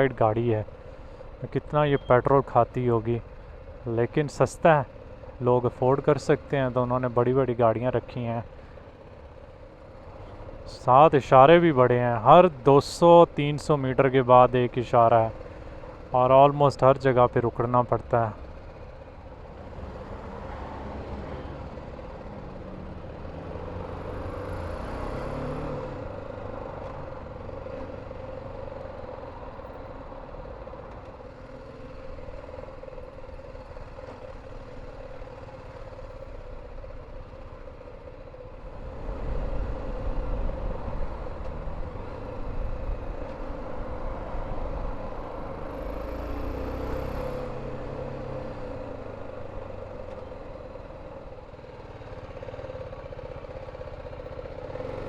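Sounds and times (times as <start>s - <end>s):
motorcycle engine: 0.0s - 55.0s
road noise: 0.0s - 55.0s.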